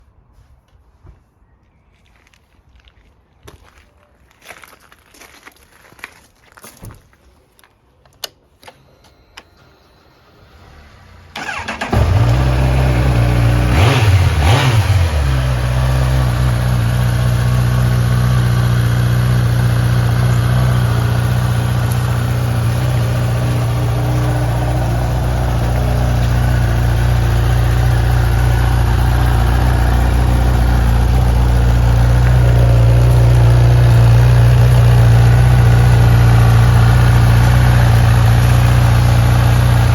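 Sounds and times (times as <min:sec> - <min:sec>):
motorcycle engine cranking and starting: 0:08.1 - 0:39.9
engine blipped: 0:09.3 - 0:39.9
motorcycle engine idling: 0:11.4 - 0:39.9.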